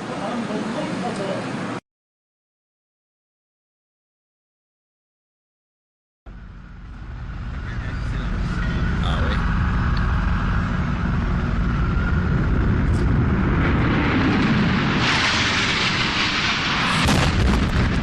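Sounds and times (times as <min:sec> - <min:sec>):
jet airliner engine roar: 0:00.0 - 0:01.8, 0:06.3 - 0:18.0
steady low rumble: 0:06.3 - 0:18.0.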